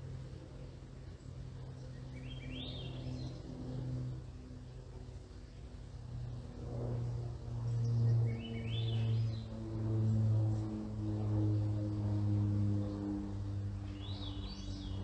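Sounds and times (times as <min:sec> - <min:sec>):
aircraft drone overhead: 0:00.0 - 0:15.0.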